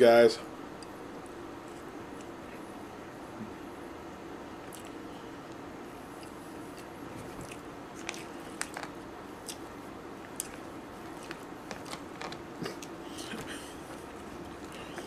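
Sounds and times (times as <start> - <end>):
faint steady hum: 0.0 - 15.0
person chewing soft food: 4.6 - 5.0, 6.0 - 15.0.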